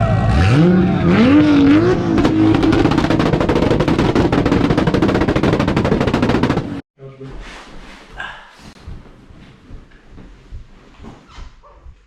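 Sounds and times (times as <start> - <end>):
car engine revving: 0.0 - 6.8
exhaust pops and bangs: 1.3 - 6.8.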